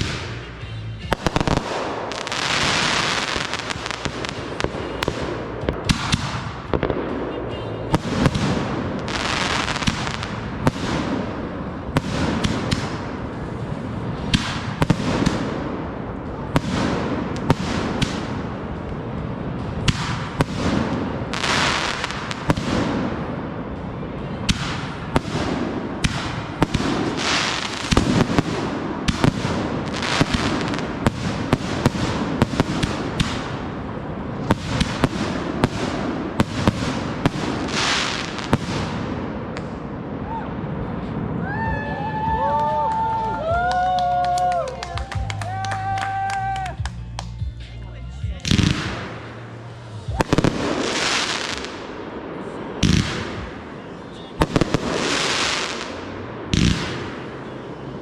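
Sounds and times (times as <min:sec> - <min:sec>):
fireworks sharp bangs: 0:00.0 - 0:41.4, 0:48.3 - 0:58.0
firework crackling hiss: 0:01.2 - 0:06.6, 0:19.6 - 0:23.2, 0:24.5 - 0:39.8, 0:48.4 - 0:52.0, 0:54.4 - 0:57.2.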